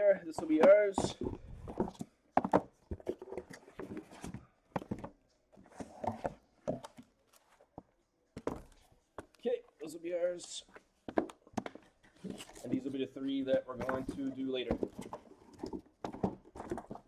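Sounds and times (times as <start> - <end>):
boxes knocking and thudding: 0.0 - 9.3, 11.0 - 17.0
cardboard scraping: 0.4 - 7.6, 11.6 - 17.0.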